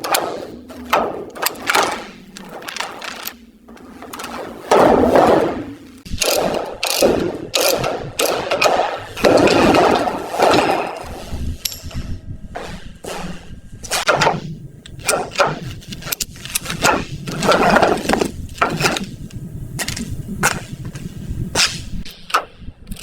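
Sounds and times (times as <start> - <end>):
sharp knocks and clicks: 0.0 - 11.0.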